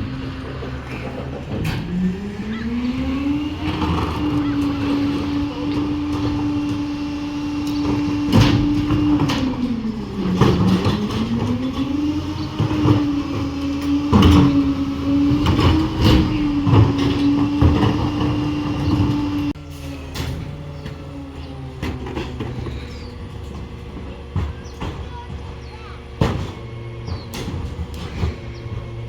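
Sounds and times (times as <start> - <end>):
garbage truck hydraulics hum: 0.0 - 29.0
metal bangs and clanks: 0.0 - 29.0.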